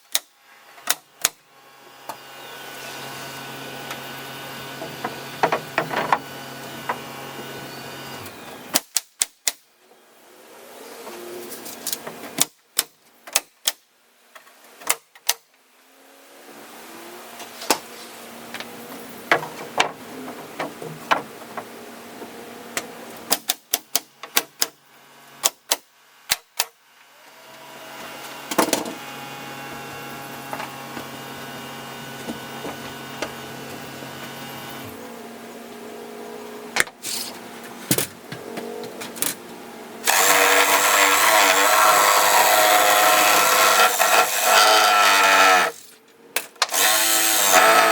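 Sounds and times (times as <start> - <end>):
steady motor hum: 1.4 - 8.7, 27.0 - 46.0
nails being hammered into wood: 8.7 - 9.6, 23.3 - 24.7, 25.4 - 26.7.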